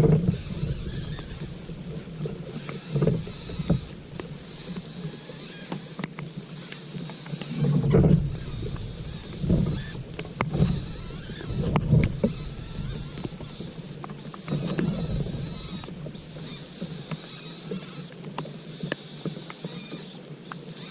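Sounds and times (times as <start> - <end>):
low knocks and rustling: 0.0 - 5.4, 7.4 - 16.7.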